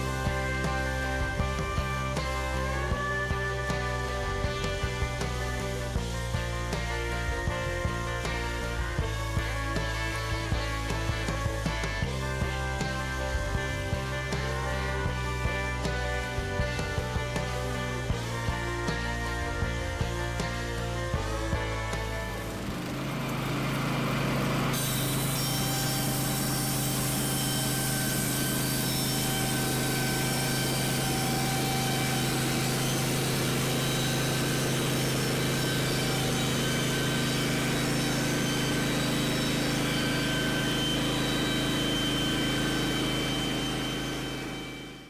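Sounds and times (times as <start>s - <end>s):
gas engine running: 0.0s - 45.0s
saw blade cutting log: 21.9s - 45.0s.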